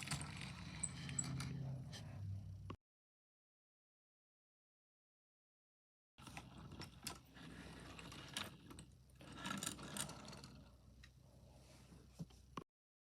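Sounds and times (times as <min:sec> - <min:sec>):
faint low hum: 0:00.1 - 0:02.7.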